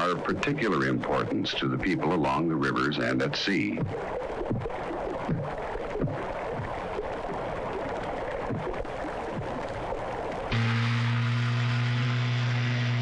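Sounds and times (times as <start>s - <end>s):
loud motor hum: 10.5s - 13.0s.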